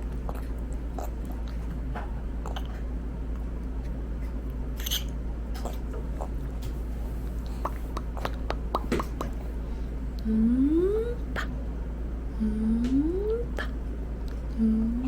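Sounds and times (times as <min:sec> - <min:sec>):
low hum: 0:00.0 - 0:15.0
toddler chewing: 0:00.1 - 0:01.8, 0:02.4 - 0:02.9, 0:03.8 - 0:09.5
wet mouth clicks and smacks: 0:07.4 - 0:09.4.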